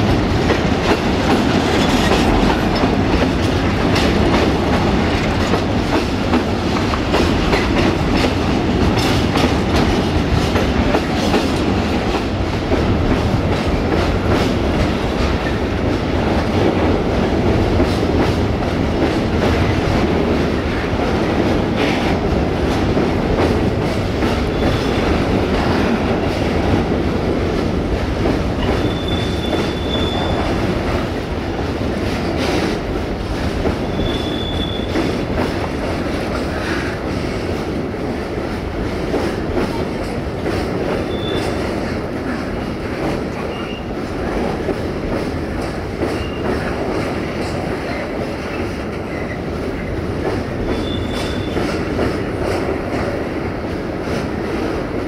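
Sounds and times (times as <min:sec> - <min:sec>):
high wheel squeals: 0:28.7 - 0:30.4, 0:33.9 - 0:34.9, 0:50.8 - 0:51.6.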